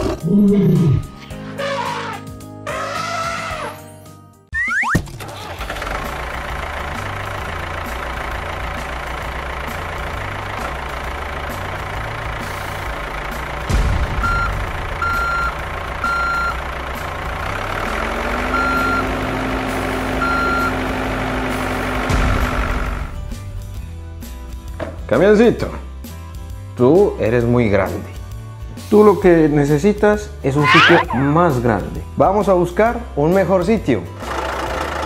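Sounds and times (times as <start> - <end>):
truck engine running: 5.2 - 23.3
reversing alarm beeping: 14.2 - 16.6, 18.5 - 19.1, 20.2 - 20.8.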